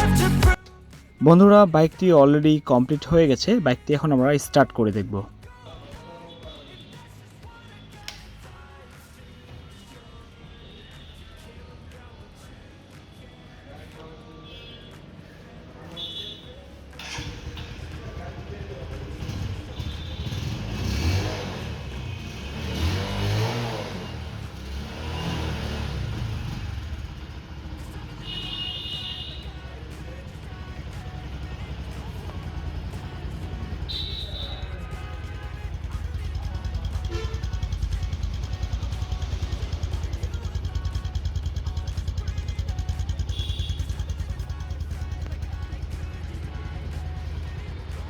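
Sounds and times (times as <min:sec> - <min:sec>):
motorcycle engine revving and idling: 0:16.8 - 0:48.0.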